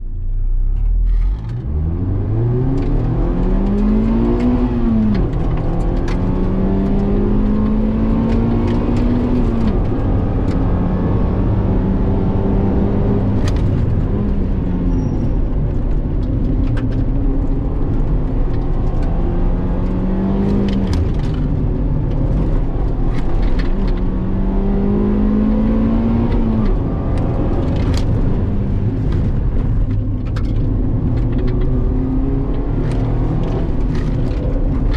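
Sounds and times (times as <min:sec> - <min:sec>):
car engine revving: 0:01.1 - 0:34.9.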